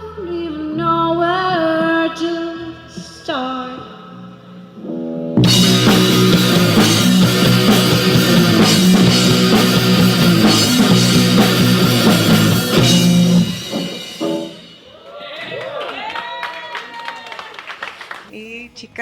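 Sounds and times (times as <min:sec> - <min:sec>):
rock band playing loud: 0:05.4 - 0:15.0.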